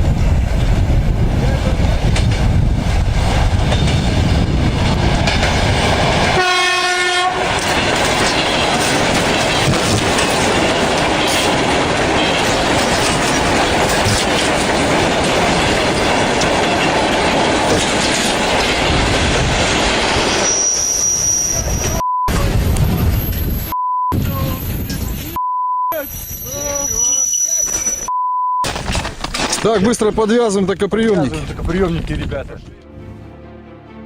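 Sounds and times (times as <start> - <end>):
train rumbling on rails: 0.0 - 25.4
train horn blast: 6.4 - 7.6.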